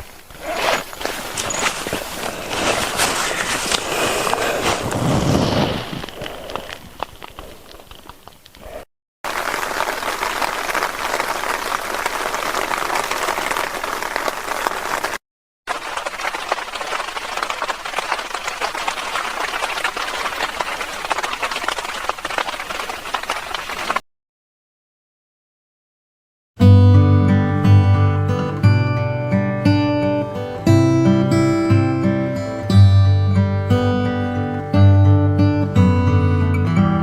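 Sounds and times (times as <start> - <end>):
heavy rain: 9.3 - 22.5.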